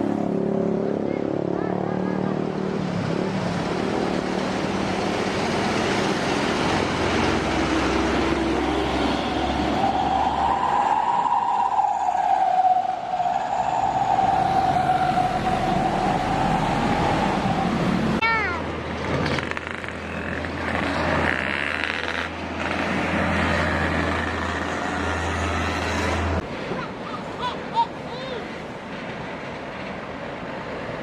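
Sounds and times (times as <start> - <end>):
heavy trucks driving past: 0.0 - 27.4
long tone sinking in pitch: 7.6 - 18.2.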